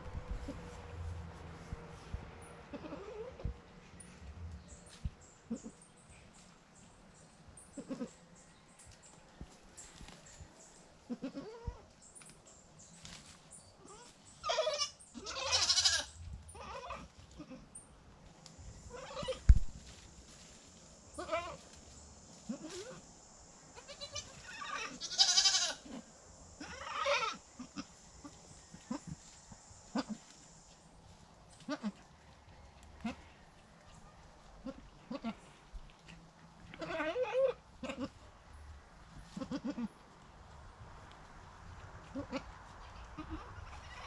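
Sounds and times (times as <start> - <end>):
goats bleating: 2.7 - 3.4, 14.0 - 17.7, 21.2 - 21.6, 23.8 - 26.0, 26.6 - 27.9, 34.6 - 35.6, 36.7 - 38.2, 39.3 - 39.9.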